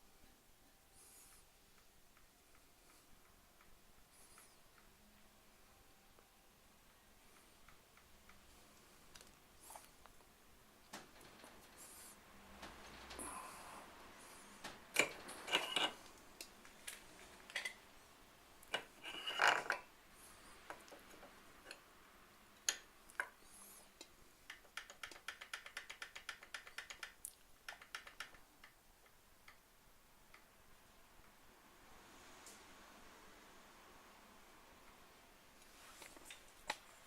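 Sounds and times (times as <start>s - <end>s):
small mechanical clicks and knocks: 24.5s - 29.6s.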